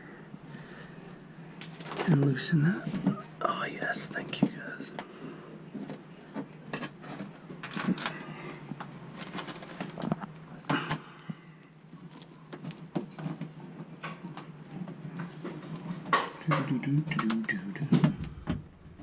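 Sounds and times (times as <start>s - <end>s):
steady low hum: 0.0s - 19.0s
metal parts clicking and scraping: 7.1s - 8.2s.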